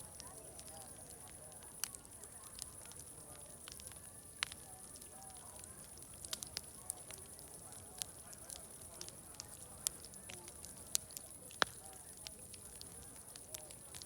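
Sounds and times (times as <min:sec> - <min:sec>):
distant crowd chatter: 0:00.0 - 0:14.0
wood fire crackling and popping: 0:00.0 - 0:14.0.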